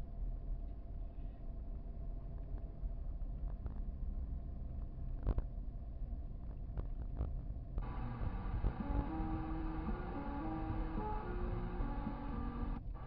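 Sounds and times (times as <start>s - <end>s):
car cabin rumble: 7.8s - 13.0s.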